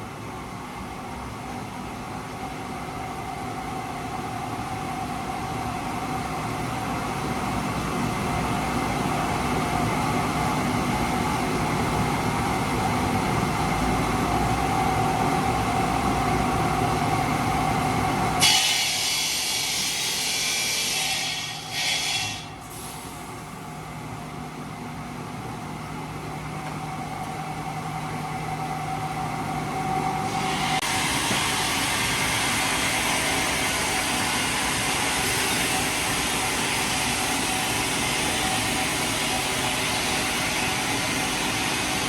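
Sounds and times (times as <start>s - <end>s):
industrial machine whine: 25.0s - 42.0s.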